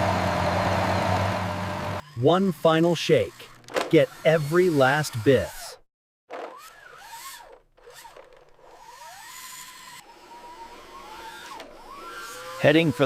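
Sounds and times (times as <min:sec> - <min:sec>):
gritty grinding noise: 0:01.9 - 0:05.8
toy electric motor whining: 0:02.0 - 0:13.0.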